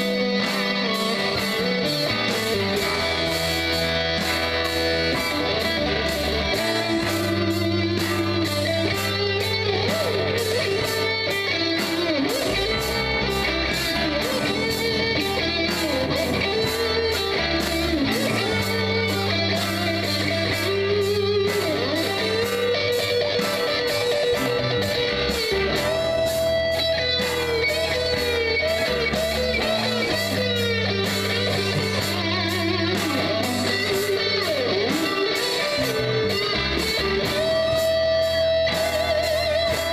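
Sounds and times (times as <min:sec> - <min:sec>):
bass guitar: 0:00.0 - 0:39.9
drums keeping a steady beat: 0:00.0 - 0:39.9
electric lead guitar bending notes: 0:00.0 - 0:39.9
rhythm guitar: 0:00.0 - 0:39.9.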